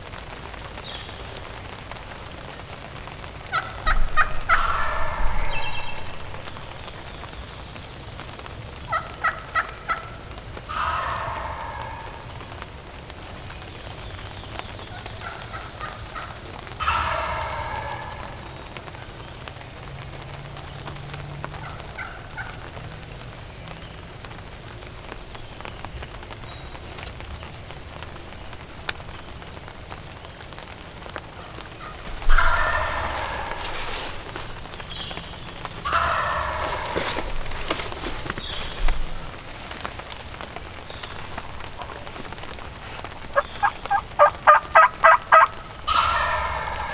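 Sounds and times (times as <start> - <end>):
wild turkey gobbling: 3.4 - 7.1, 8.9 - 12.6, 15.2 - 18.9, 31.4 - 46.9.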